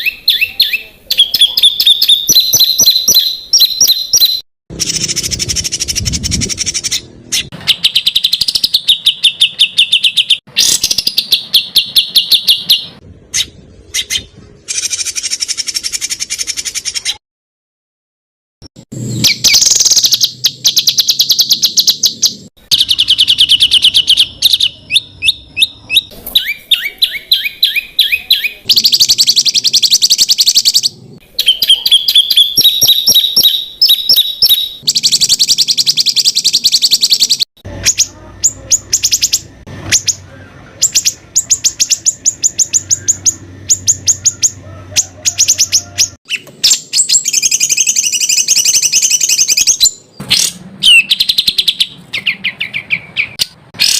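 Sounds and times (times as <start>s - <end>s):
sharp repeated bird notes: 0.0s - 17.2s, 18.7s - 53.9s
songbird harsh staccato trills: 19.2s - 53.9s.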